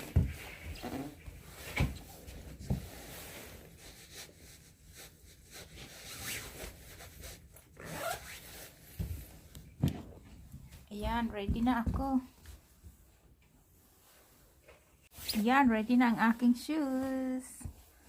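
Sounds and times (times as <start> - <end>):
zipper-like rasps: 6.0 - 6.8, 7.8 - 8.8.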